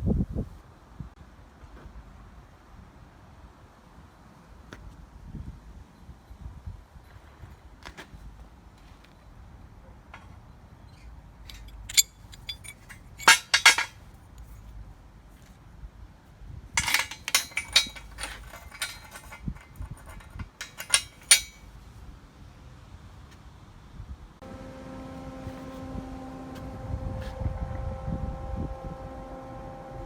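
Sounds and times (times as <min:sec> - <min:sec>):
metal clinking and clattering: 0:11.5 - 0:14.0, 0:16.8 - 0:21.7.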